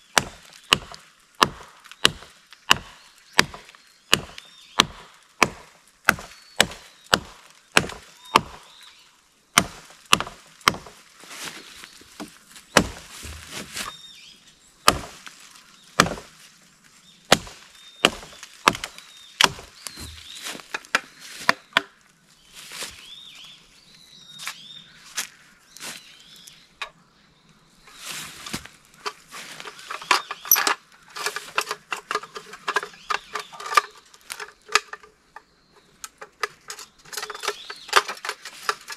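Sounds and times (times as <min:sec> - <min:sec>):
hatchet chopping wood: 0:00.1 - 0:08.7, 0:09.6 - 0:11.0, 0:12.2 - 0:13.9, 0:14.8 - 0:15.3, 0:16.0 - 0:16.3, 0:17.3 - 0:21.9.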